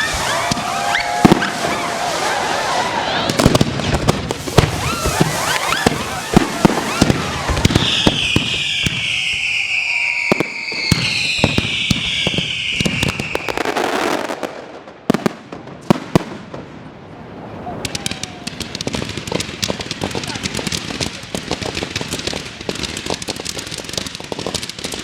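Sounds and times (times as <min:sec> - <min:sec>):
whistling firework whine: 0:00.0 - 0:03.5, 0:04.4 - 0:14.4
firework bangs: 0:00.0 - 0:25.0
firework crackling: 0:00.0 - 0:25.0.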